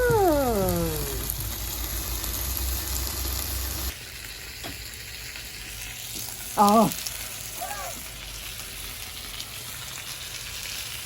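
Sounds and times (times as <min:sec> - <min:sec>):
bacon sizzling in a pan: 0:00.0 - 0:11.0.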